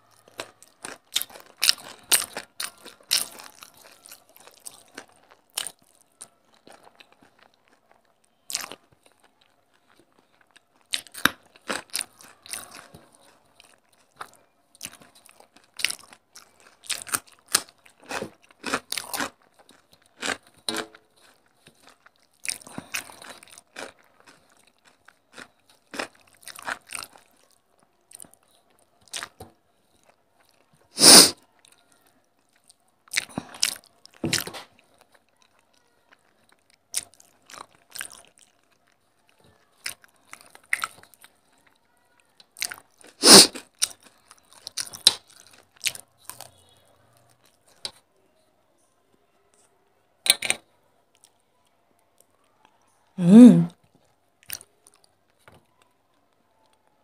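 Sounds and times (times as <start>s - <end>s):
crunching and chewing food: 0.0s - 48.5s, 49.1s - 57.0s.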